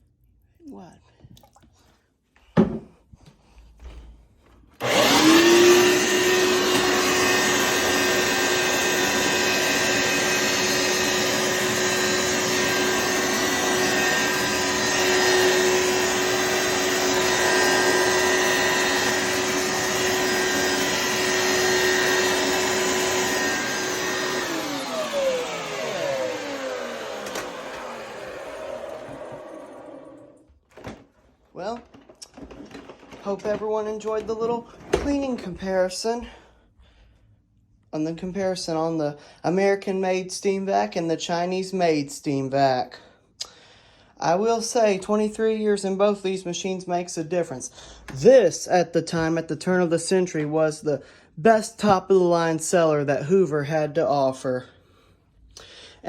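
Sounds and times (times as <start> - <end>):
carpet cleaner motor whining: 4.8 - 31.0, 31.6 - 35.1.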